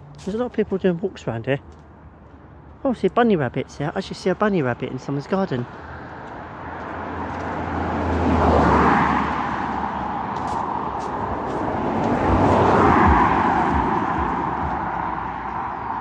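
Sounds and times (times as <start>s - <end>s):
cars passing close by: 0.0s - 16.0s
bass beat from car music: 11.7s - 16.0s.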